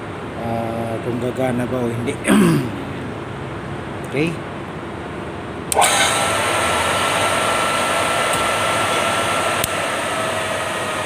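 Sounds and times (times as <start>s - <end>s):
electric motor running with whine: 5.7s - 11.0s.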